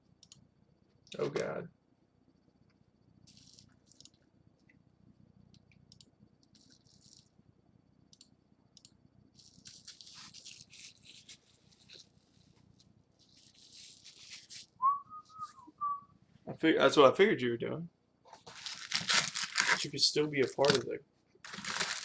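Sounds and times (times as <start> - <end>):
card packs and wrappers rustling: 9.4 - 12.2, 18.3 - 22.0.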